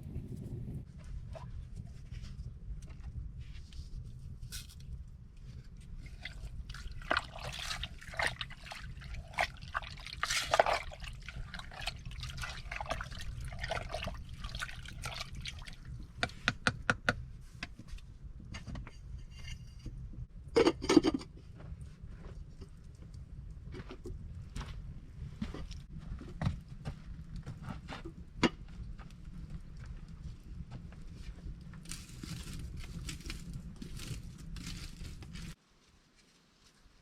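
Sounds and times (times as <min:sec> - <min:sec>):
liquid pouring and dripping: 0:06.0 - 0:16.3.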